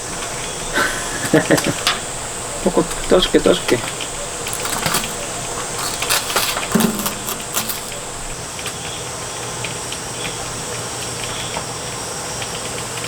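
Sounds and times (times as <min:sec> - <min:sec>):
spoon scraping a cup: 0:04.4 - 0:08.2.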